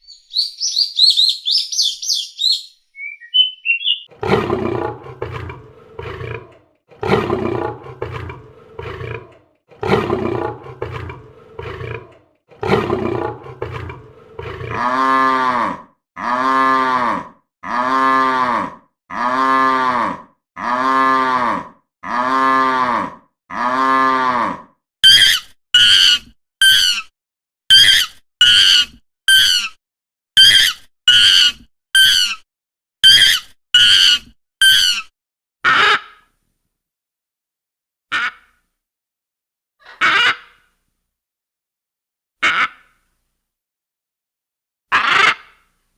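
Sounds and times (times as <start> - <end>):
large animal roaring: 4.1 - 24.7.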